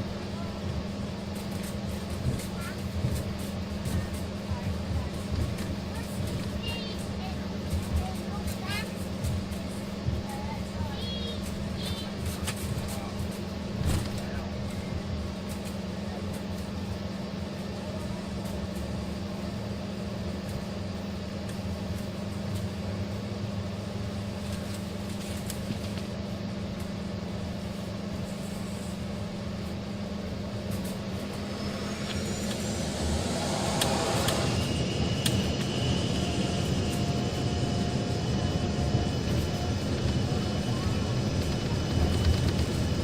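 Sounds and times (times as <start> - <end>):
jet engines droning: 0.0 - 43.0
jet engines whining: 17.3 - 43.0.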